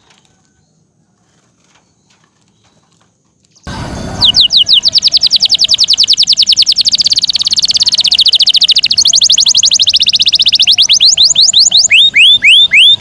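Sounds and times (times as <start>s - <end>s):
canary trilling: 3.7s - 13.0s.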